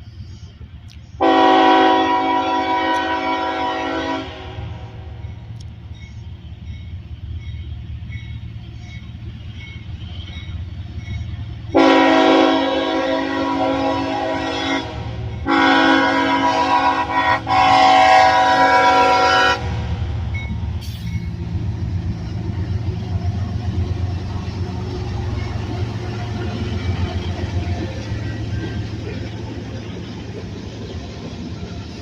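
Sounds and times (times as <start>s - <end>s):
freight train rumbling past: 0.0s - 32.0s
train air horn blasts: 1.2s - 5.1s, 11.7s - 20.0s.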